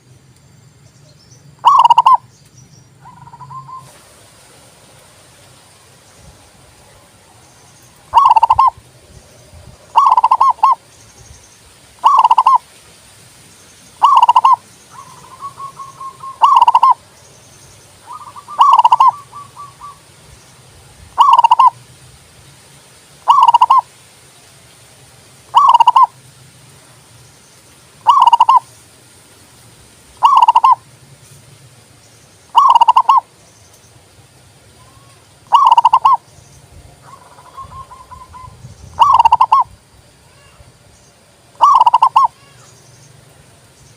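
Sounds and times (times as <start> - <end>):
dove cooing: 1.6 - 2.2, 8.1 - 8.8, 9.9 - 10.8, 12.0 - 12.6, 14.0 - 17.0, 18.0 - 20.0, 21.2 - 21.8, 23.2 - 23.9, 25.5 - 26.1, 28.0 - 28.6, 30.2 - 30.8, 32.5 - 33.3, 35.5 - 36.2, 37.0 - 39.7, 41.6 - 42.4.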